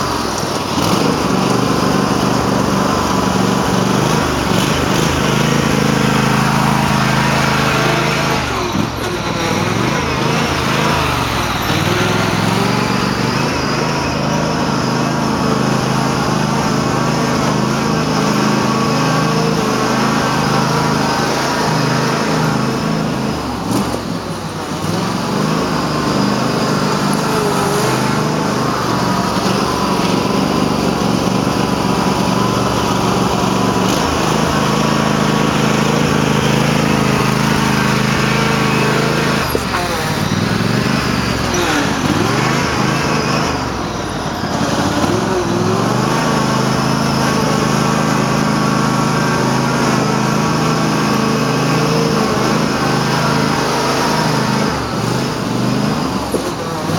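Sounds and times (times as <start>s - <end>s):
tractor engine revving high: 0.0s - 56.9s.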